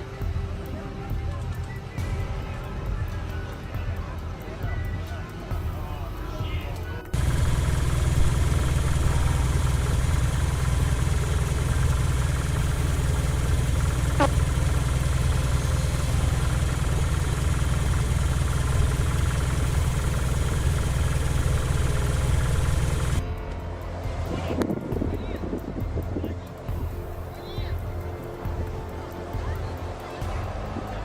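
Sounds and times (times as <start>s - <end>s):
engine idling: 5.6s - 23.4s.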